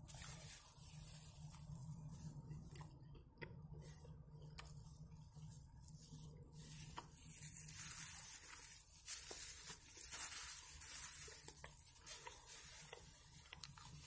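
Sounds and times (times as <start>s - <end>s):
plastic bag crinkling: 0.0s - 3.0s, 3.8s - 14.0s
mouth chewing: 10.0s - 14.0s.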